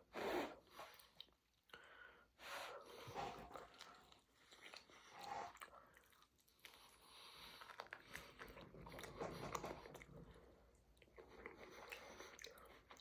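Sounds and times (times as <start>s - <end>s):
person chewing food: 3.3s - 13.0s.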